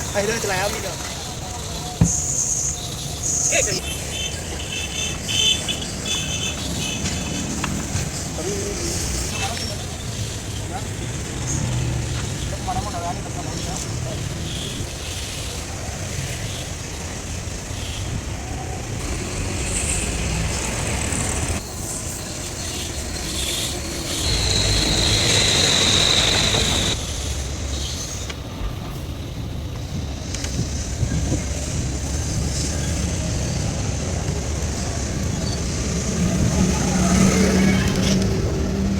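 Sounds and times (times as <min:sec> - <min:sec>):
truck engine rumble: 0:23.0 - 0:38.9.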